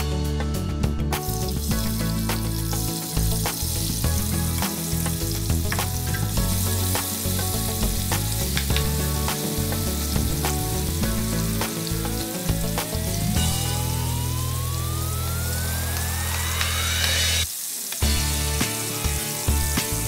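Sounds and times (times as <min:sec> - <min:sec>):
tomatoes sizzling in hot oil: 0:01.2 - 0:20.0
rising tone: 0:12.0 - 0:17.5.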